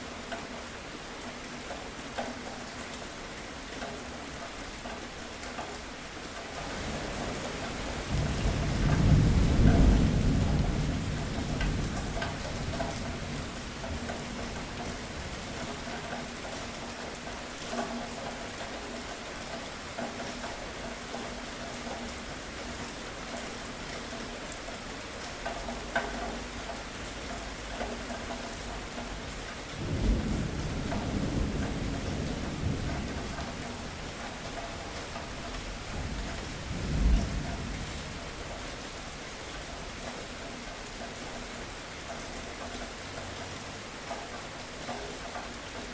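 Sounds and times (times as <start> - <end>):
steady rain: 0.0 - 45.9
rumble of thunder: 6.6 - 15.5, 29.8 - 38.6.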